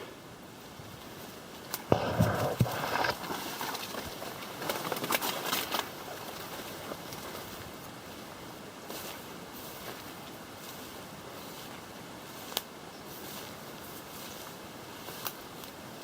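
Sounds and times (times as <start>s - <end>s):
branches rustling against clothing: 0.6s - 16.0s
branches snapping: 1.7s - 7.3s.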